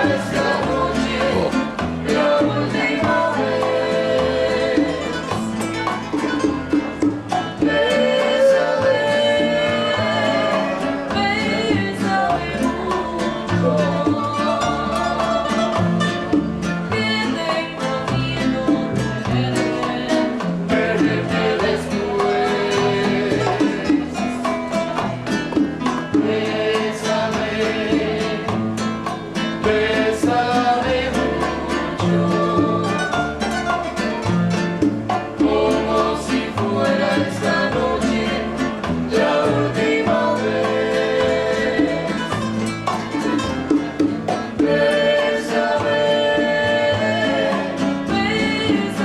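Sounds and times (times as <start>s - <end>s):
person singing: 0.0s - 5.4s, 7.5s - 15.8s, 44.6s - 49.0s
band playing guitar bass percussion: 0.0s - 49.0s.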